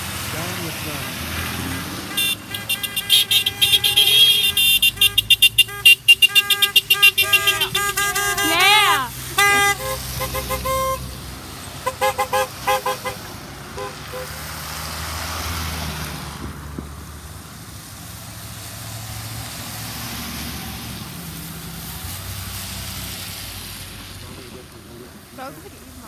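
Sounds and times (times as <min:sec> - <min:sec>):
truck horn honking: 0:00.0 - 0:14.8
truck engines rumbling past: 0:00.0 - 0:26.0.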